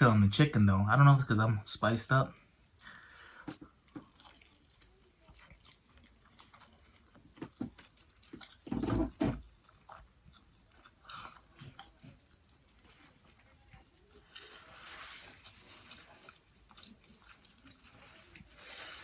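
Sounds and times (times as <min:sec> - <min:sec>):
chewing and biting fried chicken: 0:03.7 - 0:19.0.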